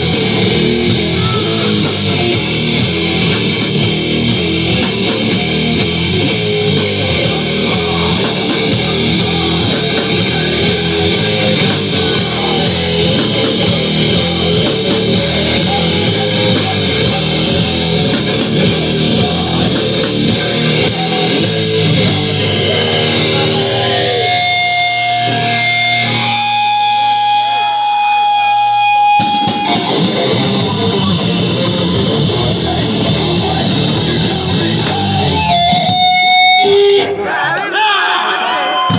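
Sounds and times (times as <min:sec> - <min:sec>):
drums: 0:00.0 - 0:37.3
distorted electric guitar: 0:00.0 - 0:37.4
heavy metal band playing: 0:00.0 - 0:38.9.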